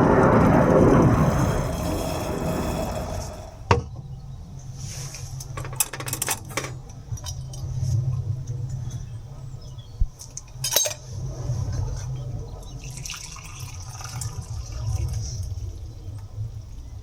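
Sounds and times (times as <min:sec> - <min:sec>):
rushing noise: 0:00.0 - 0:03.7.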